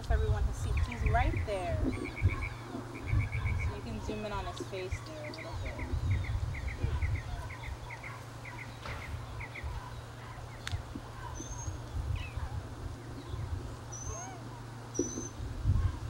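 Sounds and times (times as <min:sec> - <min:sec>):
small bird chirping: 0:00.6 - 0:15.4.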